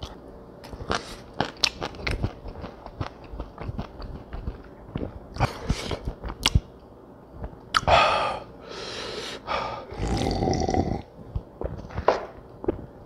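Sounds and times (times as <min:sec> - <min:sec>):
person huffing breaths: 0:07.9 - 0:10.0.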